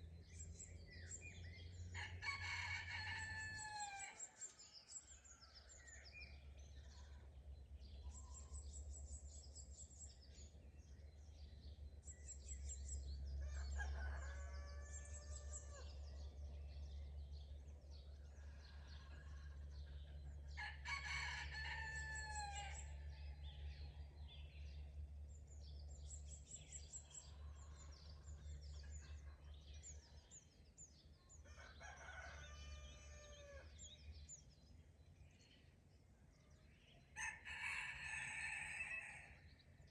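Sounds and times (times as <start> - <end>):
songbirds chirping and singing: 0.0 - 39.9
rooster crowing: 2.0 - 4.3, 13.4 - 15.9, 20.6 - 22.9, 31.5 - 33.7, 37.2 - 39.4.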